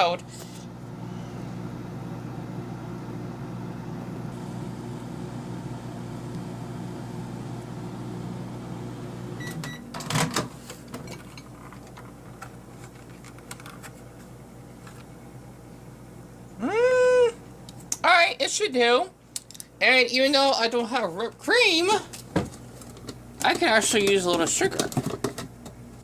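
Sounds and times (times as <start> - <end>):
microwave oven humming: 0.0 - 17.8
microwave beep: 4.4 - 10.0.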